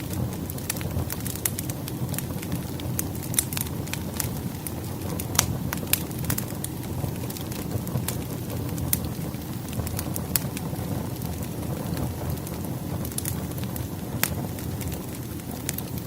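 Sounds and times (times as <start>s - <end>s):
fireplace fire crackling: 0.0s - 16.0s.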